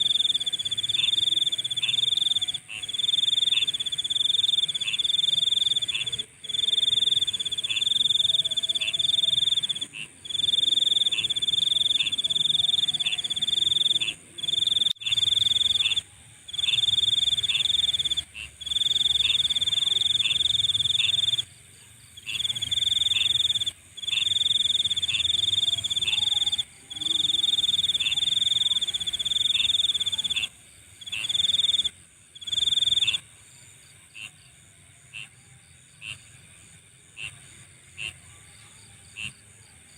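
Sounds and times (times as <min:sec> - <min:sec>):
night insects trilling: 0:00.0 - 0:39.9.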